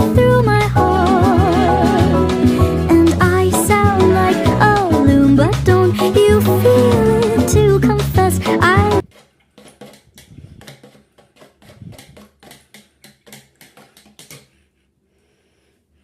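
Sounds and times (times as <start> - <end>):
sung pop song: 0.0 - 9.0.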